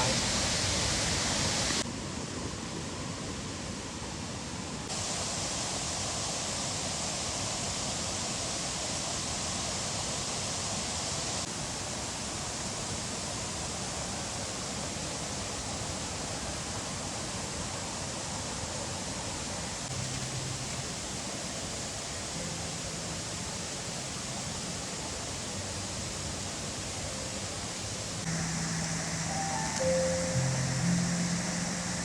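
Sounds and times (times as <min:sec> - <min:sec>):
waterfall rushing: 0:00.0 - 0:01.8, 0:19.4 - 0:32.0.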